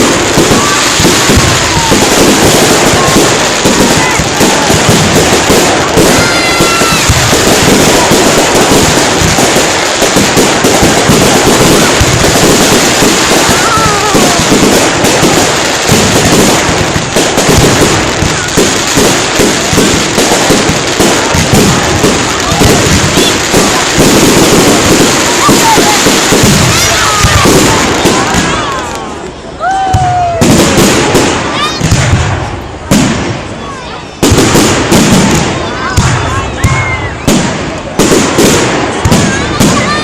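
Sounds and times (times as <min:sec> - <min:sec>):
fireworks bangs and crackle: 0:00.0 - 0:40.0
whistling fireworks: 0:00.0 - 0:40.0.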